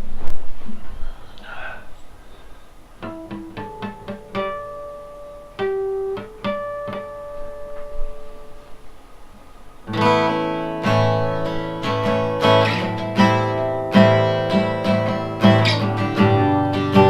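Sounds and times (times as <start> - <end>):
acoustic guitar playing: 2.9 - 17.0.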